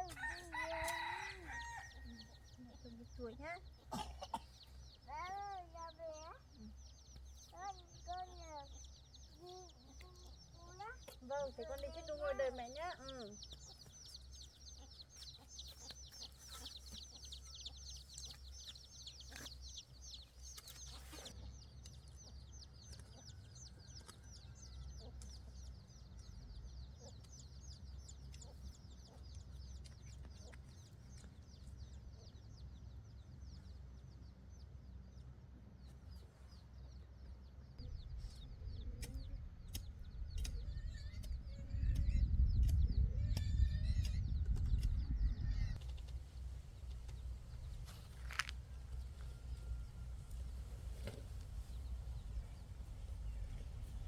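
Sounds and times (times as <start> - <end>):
chicks peeping: 0.0 - 54.0
low rumble: 37.8 - 54.0.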